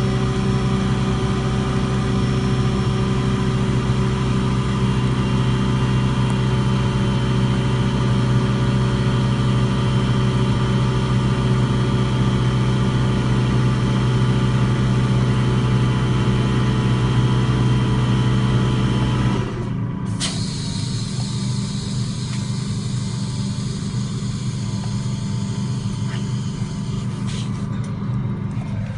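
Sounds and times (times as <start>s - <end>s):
engine running: 0.0s - 28.9s.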